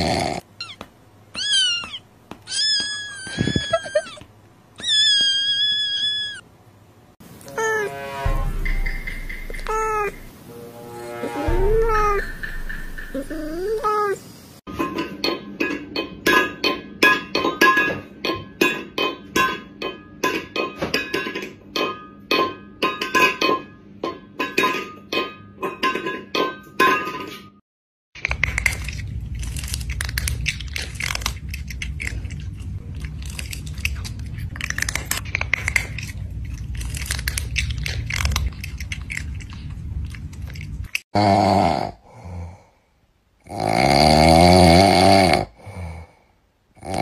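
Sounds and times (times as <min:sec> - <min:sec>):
low steady hum: 0:06.4 - 0:14.6
bouncy plucked music: 0:07.4 - 0:10.3, 0:11.4 - 0:13.8
wet chewing: 0:28.2 - 0:41.0.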